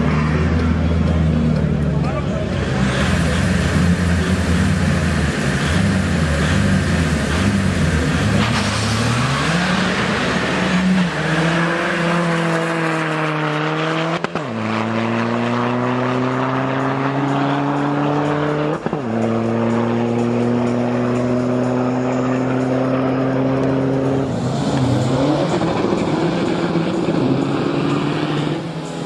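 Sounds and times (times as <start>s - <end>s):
drag racing cars accelerating: 0.0s - 29.0s.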